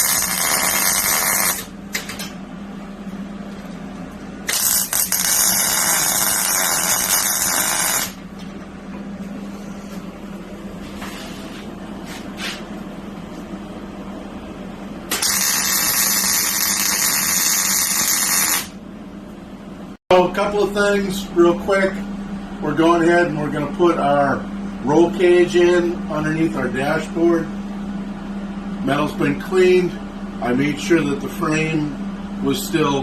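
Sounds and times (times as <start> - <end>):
welder welding: 0.0 - 2.1, 4.4 - 8.2, 15.1 - 18.8
steady low hum: 0.0 - 33.0.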